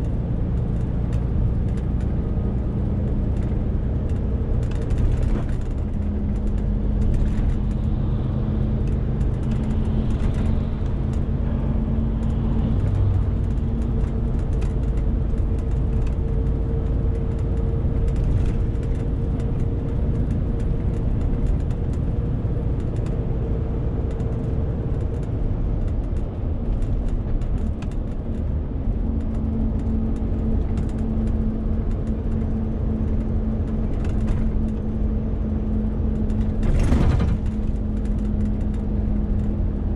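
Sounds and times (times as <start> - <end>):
truck diesel engine droning: 3.8 - 24.9.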